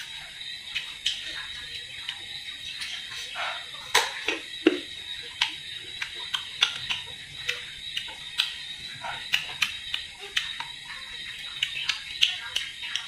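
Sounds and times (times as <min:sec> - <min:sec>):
open-mouthed chewing: 0:05.3 - 0:13.0.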